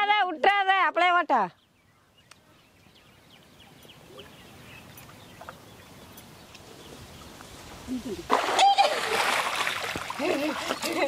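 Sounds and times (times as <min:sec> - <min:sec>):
outdoor background noise: 0:00.0 - 0:11.0
bird chirps: 0:01.5 - 0:07.4.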